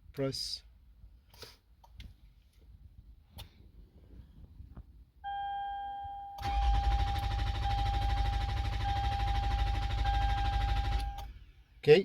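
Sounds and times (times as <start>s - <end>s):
high electronic warning tone: 6.4s - 11.3s
starter cranking engine: 6.4s - 11.3s.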